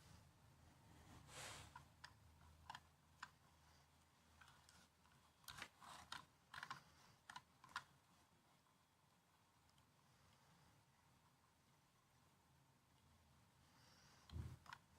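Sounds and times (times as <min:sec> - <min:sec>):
laptop keyboard typing: 0:04.3 - 0:08.0.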